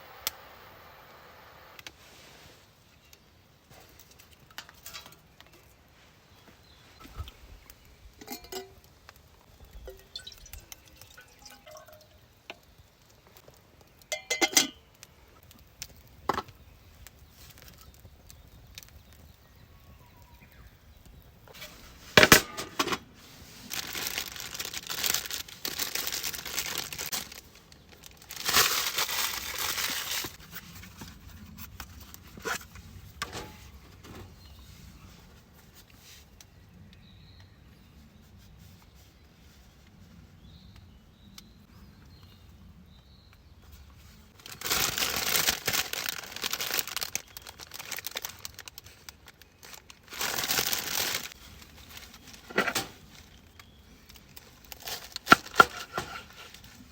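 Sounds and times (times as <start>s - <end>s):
crinkling: 1.8s - 36.5s, 43.6s - 56.9s
knocks and clinks of handling: 8.2s - 8.8s, 14.1s - 14.8s.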